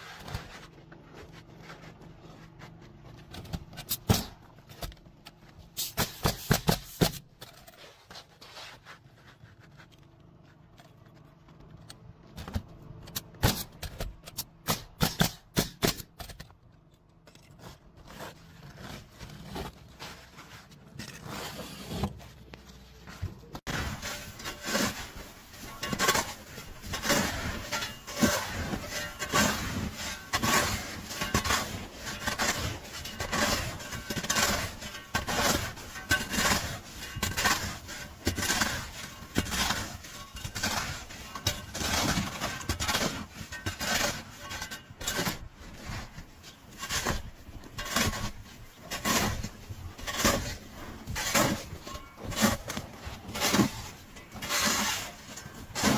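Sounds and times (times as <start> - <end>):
construction knocks and scraping: 0.0 - 55.9.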